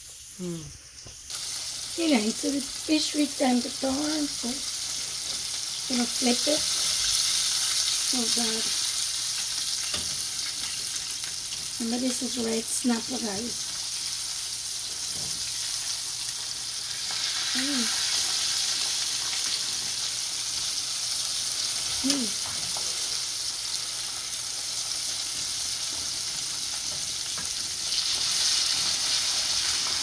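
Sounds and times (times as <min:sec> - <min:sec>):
fish deep-frying in hot oil: 0:01.3 - 0:30.0.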